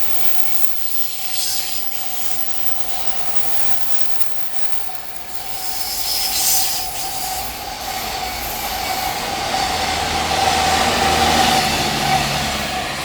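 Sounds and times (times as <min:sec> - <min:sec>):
freight train rolling: 0:00.0 - 0:13.0
train wheels squealing: 0:00.0 - 0:13.0.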